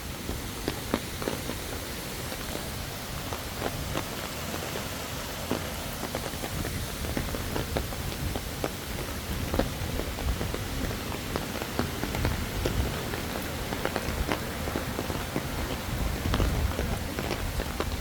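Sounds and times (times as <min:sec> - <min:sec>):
rain falling: 0:00.0 - 0:18.0
drips and taps: 0:00.6 - 0:18.0.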